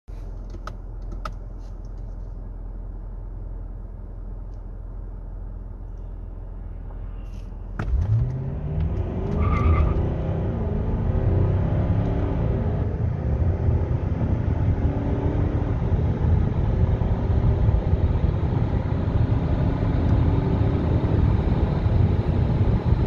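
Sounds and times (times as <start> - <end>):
car accelerating at full throttle: 7.8 - 23.0.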